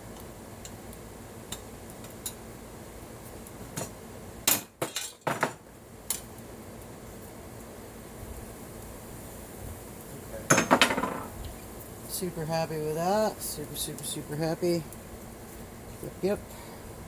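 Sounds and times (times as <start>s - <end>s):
metal tools clinking: 4.8s - 5.4s.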